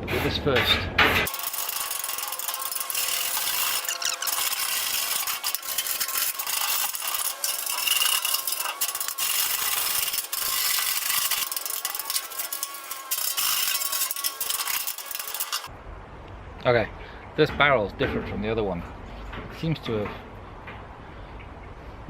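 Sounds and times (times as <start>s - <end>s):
wire brush scrubbing steel drum: 1.3s - 15.7s.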